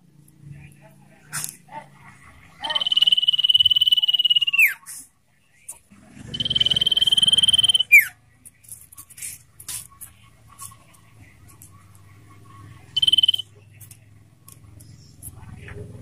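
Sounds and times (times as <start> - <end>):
bird trilled whistles: 2.6 - 4.8, 6.3 - 8.1, 13.0 - 13.4.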